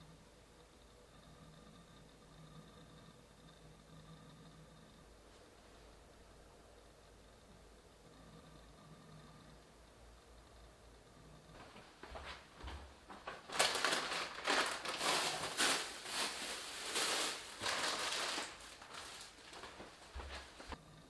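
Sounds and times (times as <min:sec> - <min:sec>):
packaging rustling: 0:13.1 - 0:20.8.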